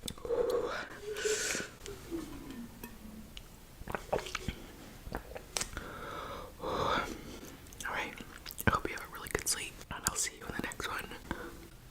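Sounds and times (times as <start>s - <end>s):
person chewing noodles: 7.0s - 8.7s
wet mouth clicks and smacks: 7.6s - 10.2s.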